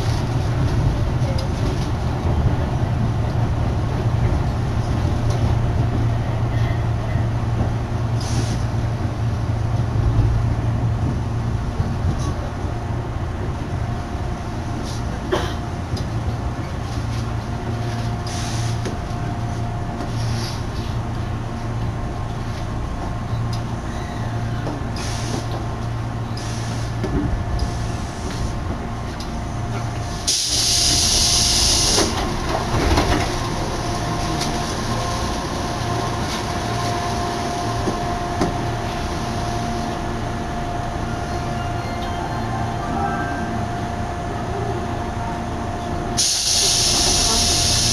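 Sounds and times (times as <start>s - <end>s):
train rumble and whine: 0.0s - 47.9s
loud hiss: 30.2s - 32.2s, 46.2s - 47.9s.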